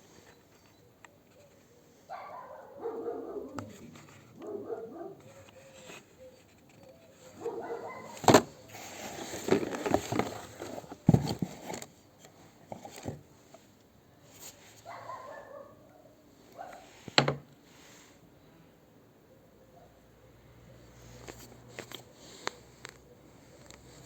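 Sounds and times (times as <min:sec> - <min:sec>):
packaging rustling: 0:05.3 - 0:11.9.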